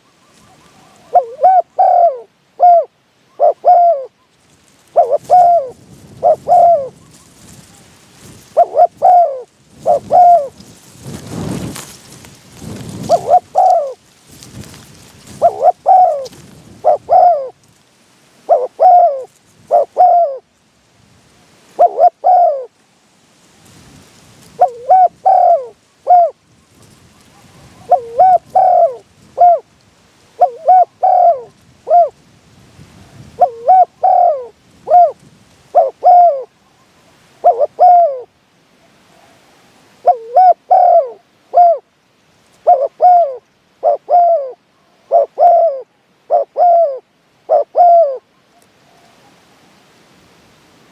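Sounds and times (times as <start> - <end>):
dove cooing: 0.0 - 4.2, 4.9 - 7.9, 8.5 - 11.8, 12.6 - 14.0, 15.2 - 17.6, 18.4 - 20.5, 21.8 - 22.8, 24.5 - 29.7, 30.4 - 32.2, 33.2 - 41.9, 42.6 - 49.4.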